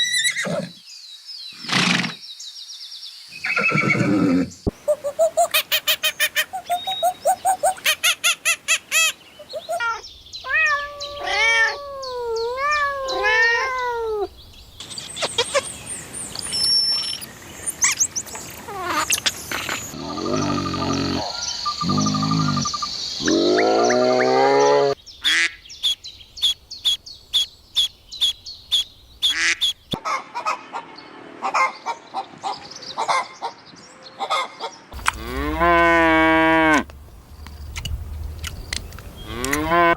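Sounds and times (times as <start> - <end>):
animal calls: 3.4 - 14.3, 18.6 - 25.5
chirping and whistling calls: 4.7 - 13.7, 14.3 - 30.0.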